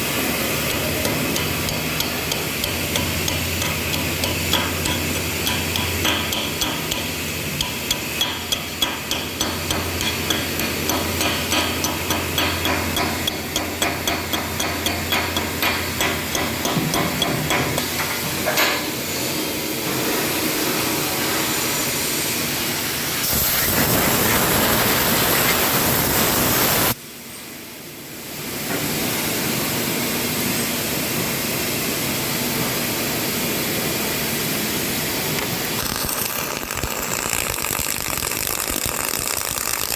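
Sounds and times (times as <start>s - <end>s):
welding arc crackling and hissing: 0.0s - 18.3s, 21.5s - 27.0s, 34.8s - 39.9s.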